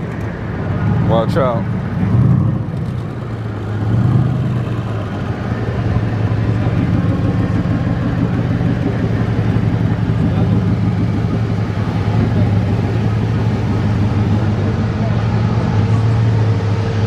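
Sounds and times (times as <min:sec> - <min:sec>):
car engine low drone: 0:00.0 - 0:17.0.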